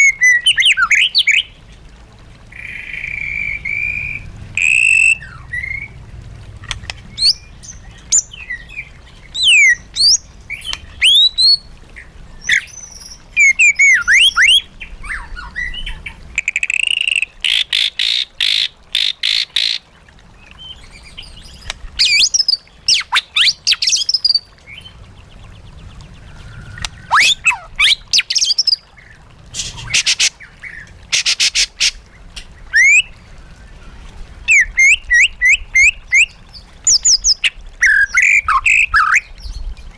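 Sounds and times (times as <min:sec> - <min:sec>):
bird whistling song: 0:07.2 - 0:11.6, 0:12.4 - 0:17.2, 0:22.0 - 0:24.9, 0:26.3 - 0:28.8, 0:32.7 - 0:33.1, 0:34.5 - 0:39.6.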